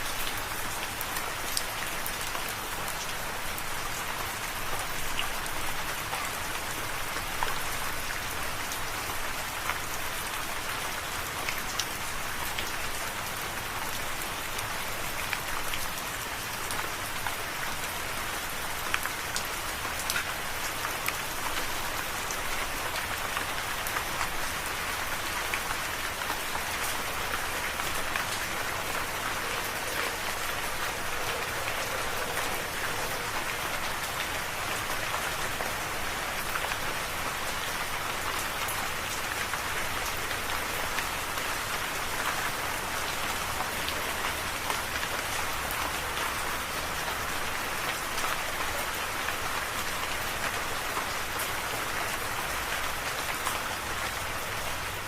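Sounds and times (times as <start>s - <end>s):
rain pattering on a surface: 0.0s - 55.0s.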